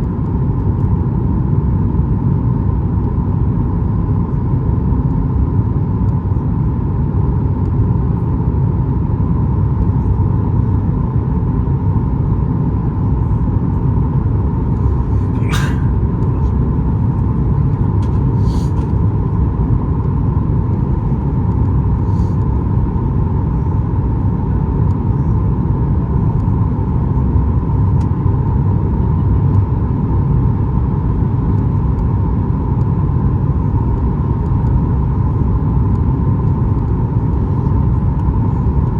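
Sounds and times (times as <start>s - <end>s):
airplane cabin rumble: 9.8s - 26.3s
mid-pitched hum: 13.0s - 19.9s.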